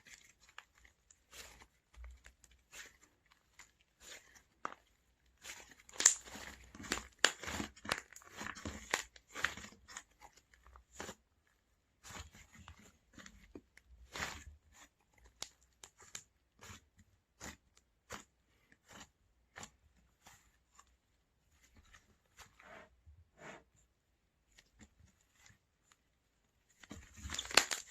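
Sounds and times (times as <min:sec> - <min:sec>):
slime squeezed by hand crackling: 0:27.2 - 0:27.9.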